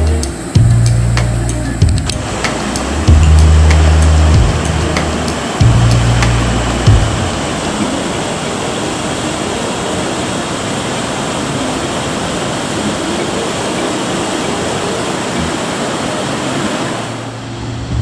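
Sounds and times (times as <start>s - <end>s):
ocean waves breaking: 0.0s - 18.0s.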